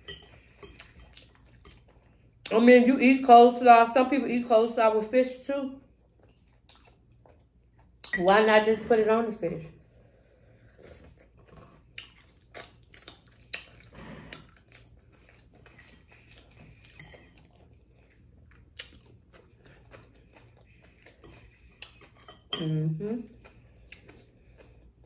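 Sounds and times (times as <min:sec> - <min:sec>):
person chewing food: 0:00.0 - 0:02.5, 0:05.9 - 0:08.1, 0:09.9 - 0:22.5, 0:23.2 - 0:25.0.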